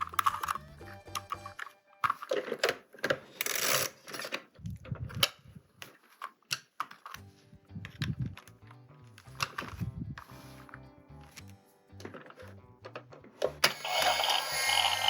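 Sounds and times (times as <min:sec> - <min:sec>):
quiet music: 0:00.0 - 0:02.8, 0:06.8 - 0:15.0
plastic toy parts clicking: 0:00.0 - 0:07.2.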